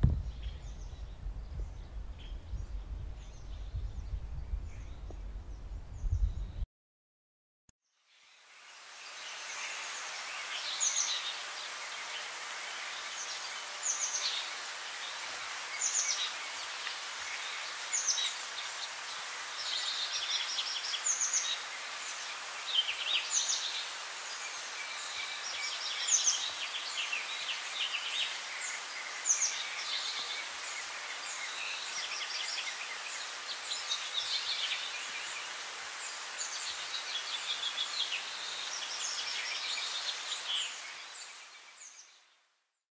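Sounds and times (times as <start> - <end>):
steady background hiss: 0.0 - 6.2, 8.0 - 42.5
birds chirping and singing: 0.0 - 6.6.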